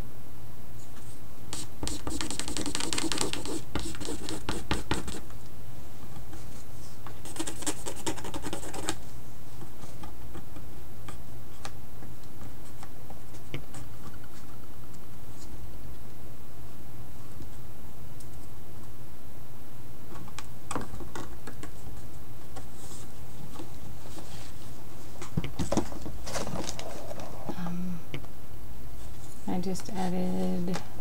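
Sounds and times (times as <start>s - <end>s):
steady low hum: 0.0s - 31.0s
pen scratching on painting surface: 1.5s - 5.2s, 7.2s - 9.0s.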